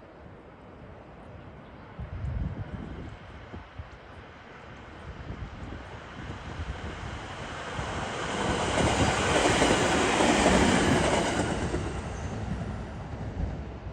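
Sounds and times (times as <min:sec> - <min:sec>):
electric train passing at speed: 0:00.0 - 0:13.9
train wheels on rails: 0:05.7 - 0:13.9.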